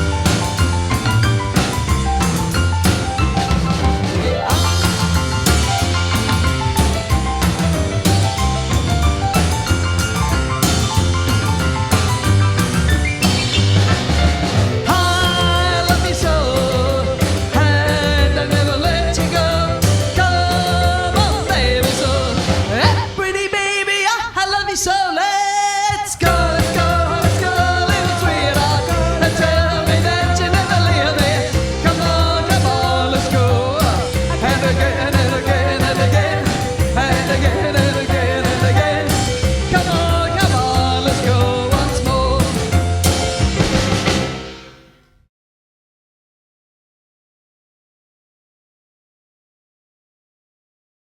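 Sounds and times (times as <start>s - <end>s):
pulsing bass line: 0.0s - 23.1s, 26.3s - 44.6s
rockabilly band playing: 0.0s - 24.5s, 25.9s - 45.0s
woman singing: 14.9s - 42.7s.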